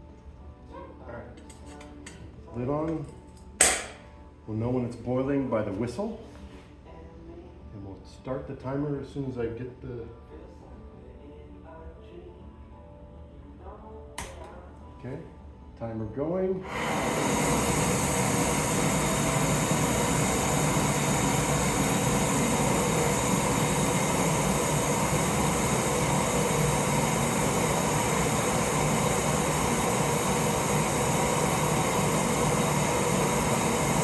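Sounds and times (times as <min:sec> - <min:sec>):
gas burner rushing: 0:03.6 - 0:04.0, 0:16.6 - 0:34.0.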